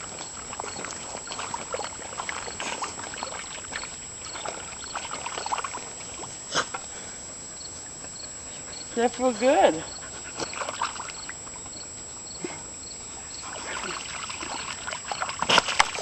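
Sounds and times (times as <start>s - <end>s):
dogs splashing in muddy puddle: 0.0s - 6.8s, 9.2s - 11.7s, 13.3s - 16.0s.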